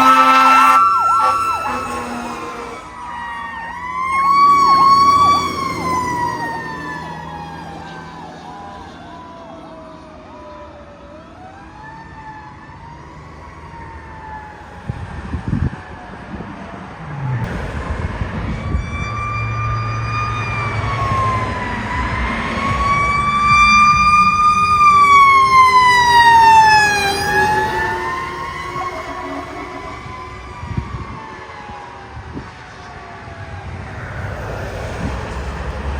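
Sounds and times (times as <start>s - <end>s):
truck engine rumbling: 0.0s - 9.0s, 16.2s - 35.9s
fire truck siren wailing: 0.0s - 35.9s.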